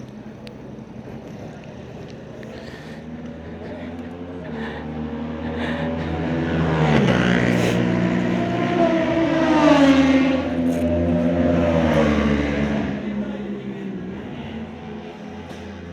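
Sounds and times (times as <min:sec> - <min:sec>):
motorcycle engine revving: 0:03.4 - 0:15.9.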